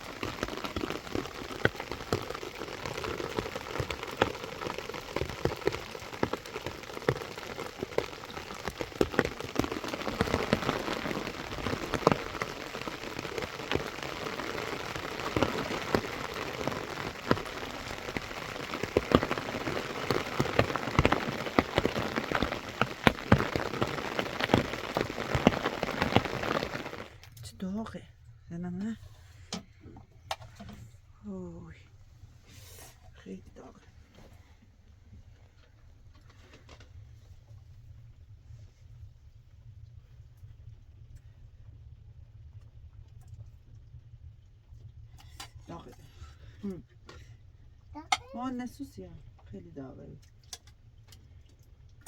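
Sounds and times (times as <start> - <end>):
heavy rain falling: 0.0 - 27.3, 48.0 - 48.8.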